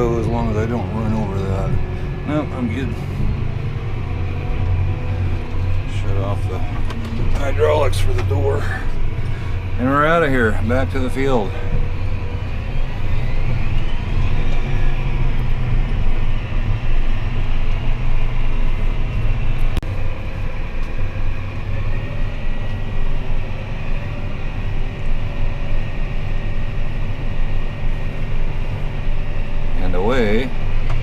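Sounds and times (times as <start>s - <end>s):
combine engine rumble: 0.0s - 31.0s
faint whining tones: 0.0s - 31.0s.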